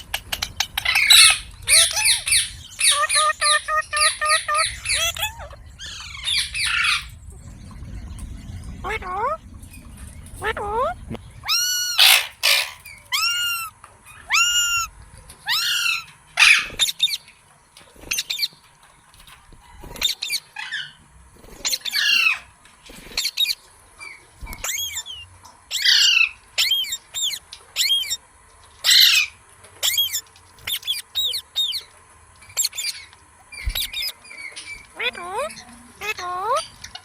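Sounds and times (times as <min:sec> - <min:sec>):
parrot squawking: 0:00.1 - 0:07.2, 0:08.8 - 0:09.4, 0:10.4 - 0:17.2, 0:21.6 - 0:22.5, 0:24.6 - 0:28.2, 0:28.8 - 0:31.9, 0:32.6 - 0:36.8.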